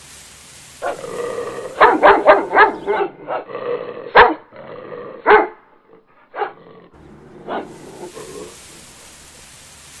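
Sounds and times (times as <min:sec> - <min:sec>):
dog barking: 0:00.8 - 0:03.5, 0:04.1 - 0:04.5, 0:05.2 - 0:05.7, 0:06.3 - 0:06.6, 0:07.3 - 0:09.1.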